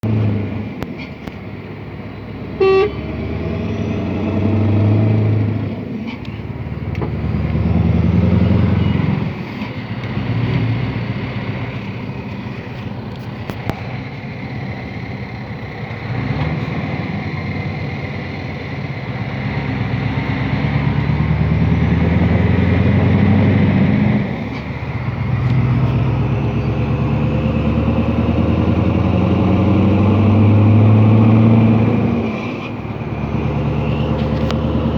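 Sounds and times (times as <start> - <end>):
truck engine running: 0.0 - 34.9
short horn toot: 2.6 - 3.1.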